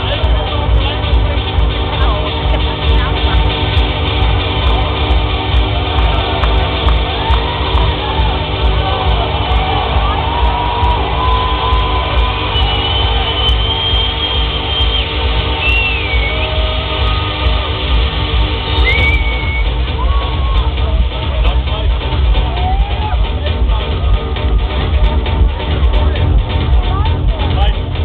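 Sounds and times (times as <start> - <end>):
loud electronic dance music: 0.0 - 28.0
crowd shouts: 4.6 - 18.0, 18.8 - 21.0, 22.3 - 25.1.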